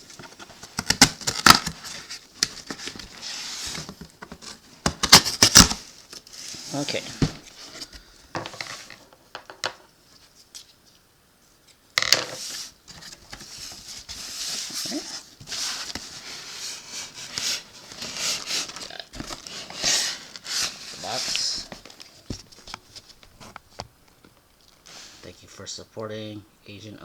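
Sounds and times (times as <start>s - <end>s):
cardboard and packing rustling: 0.0s - 9.1s, 12.3s - 25.3s
clicks and knocks of box handling: 0.1s - 6.2s.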